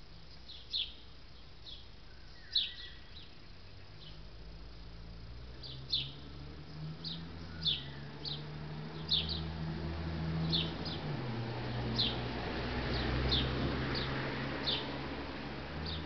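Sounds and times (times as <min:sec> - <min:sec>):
low steady hum: 0:00.0 - 0:08.3
bird chirping: 0:00.2 - 0:04.3, 0:05.5 - 0:09.6, 0:10.4 - 0:11.2, 0:12.9 - 0:14.9.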